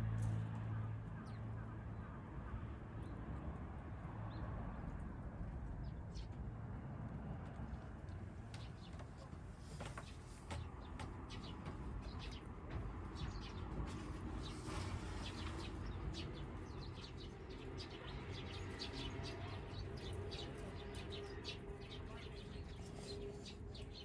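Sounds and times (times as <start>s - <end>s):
small birds chirping: 8.5s - 24.0s.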